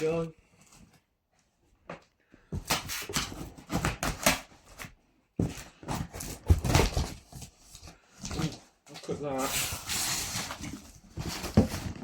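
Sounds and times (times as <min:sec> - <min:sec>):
cardboard packaging rustling: 0:02.5 - 0:12.0.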